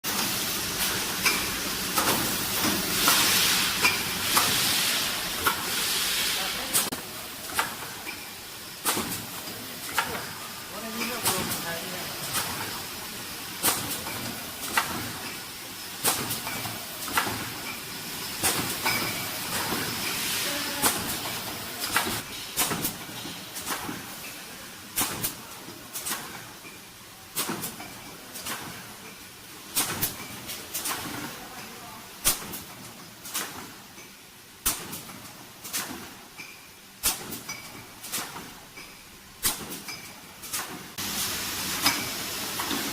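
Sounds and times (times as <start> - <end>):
machine hissing: 0.1 - 25.5
pneumatic air hiss: 2.9 - 6.9.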